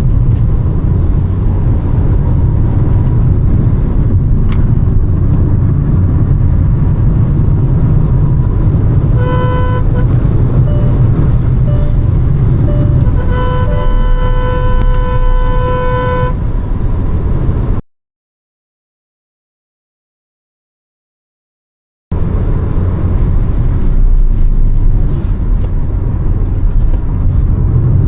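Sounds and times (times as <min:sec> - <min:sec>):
car engine and road noise: 0:00.0 - 0:17.8, 0:22.1 - 0:28.0
car horn honking: 0:09.1 - 0:16.4.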